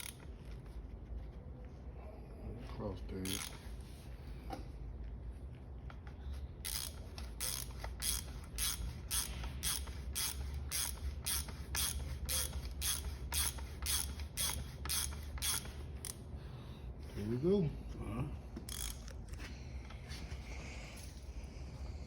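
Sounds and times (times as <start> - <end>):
ratchet wrench clicking: 0.0 - 0.3, 3.2 - 3.7, 6.6 - 16.2, 18.7 - 19.2.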